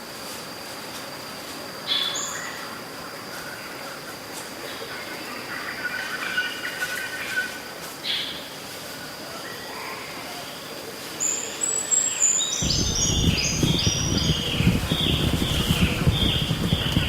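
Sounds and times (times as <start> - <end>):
loud low rumbling: 12.6 - 17.0.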